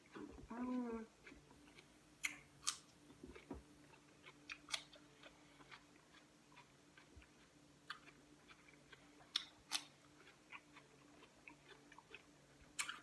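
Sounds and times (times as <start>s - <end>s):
chewing cucumber: 0.0s - 13.0s
wet mouth clicks: 1.7s - 2.8s, 12.8s - 13.0s.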